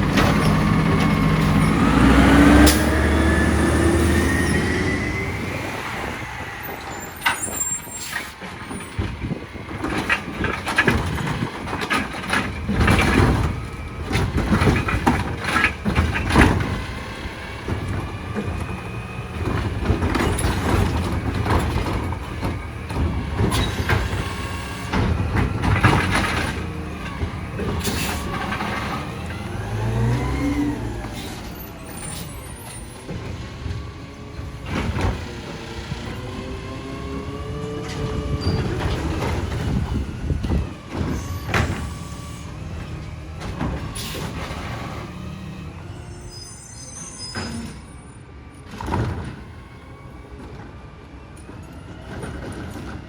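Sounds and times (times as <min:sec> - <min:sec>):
garbage truck diesel engine: 0:00.0 - 0:53.0
clanks and bangs: 0:08.4 - 0:36.4.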